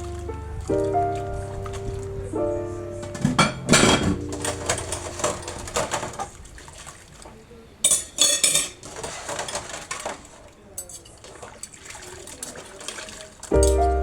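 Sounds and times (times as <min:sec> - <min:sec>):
soft background music: 0:00.0 - 0:06.0, 0:13.5 - 0:14.0
dishes and cutlery clattering: 0:03.0 - 0:06.4, 0:07.8 - 0:13.9.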